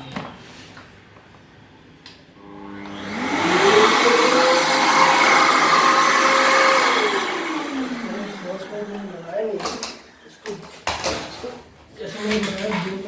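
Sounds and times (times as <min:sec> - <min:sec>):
vacuum cleaner motor whine: 0:02.4 - 0:09.2.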